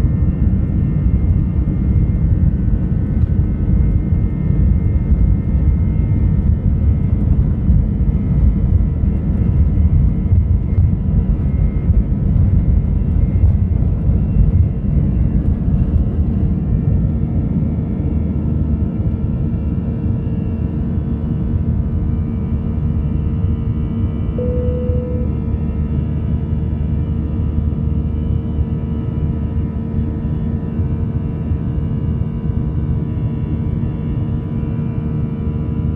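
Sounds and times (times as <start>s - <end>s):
faint engine whine: 0.0s - 35.9s
brief steady tone: 24.4s - 25.6s.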